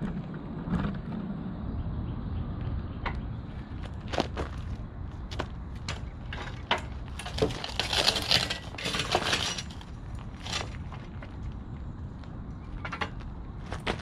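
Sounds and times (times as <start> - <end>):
rocks crunching underfoot: 3.6 - 14.0.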